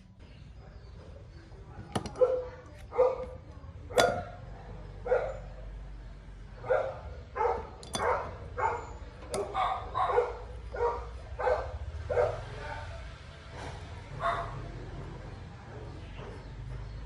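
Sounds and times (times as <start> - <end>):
dog barking: 1.7 - 4.4, 5.0 - 5.7, 6.6 - 13.1, 14.1 - 14.8.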